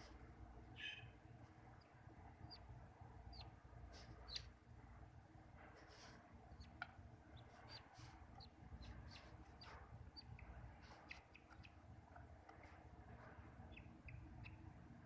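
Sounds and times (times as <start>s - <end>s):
budgerigar chirps and clicks: 0.8s - 1.2s, 3.3s - 4.5s, 6.6s - 12.3s, 13.7s - 14.8s.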